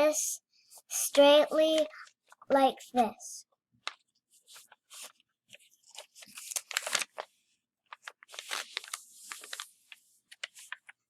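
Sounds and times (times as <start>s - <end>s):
paper rustling and crinkling: 3.8s - 11.0s.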